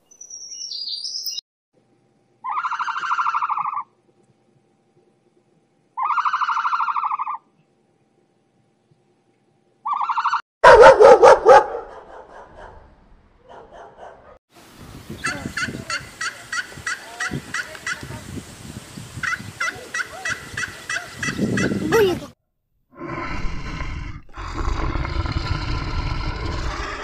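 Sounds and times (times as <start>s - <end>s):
short turkey calls: 2.4s - 3.9s, 6.0s - 7.4s, 15.2s - 18.0s, 19.2s - 21.8s
turkey gobbling: 2.4s - 3.9s, 6.0s - 7.4s, 9.9s - 10.4s, 15.2s - 18.0s, 19.2s - 21.8s.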